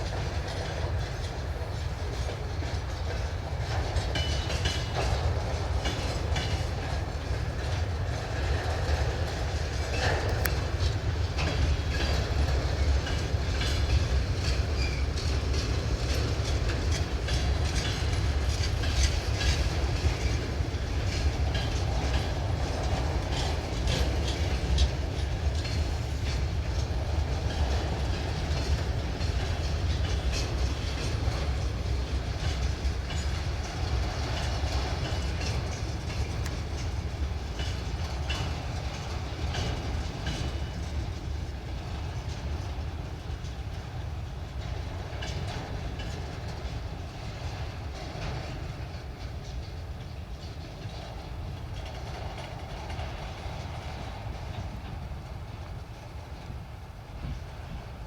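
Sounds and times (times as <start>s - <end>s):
train wagons rumbling: 0.0s - 58.0s
wheels clicking over rail joints: 0.0s - 58.0s.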